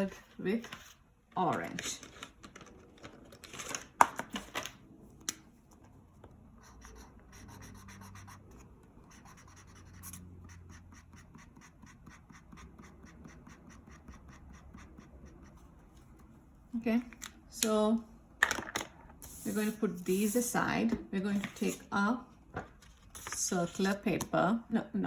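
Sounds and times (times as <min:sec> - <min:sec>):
coloring strokes on paper: 0:06.6 - 0:16.0, 0:19.3 - 0:20.6.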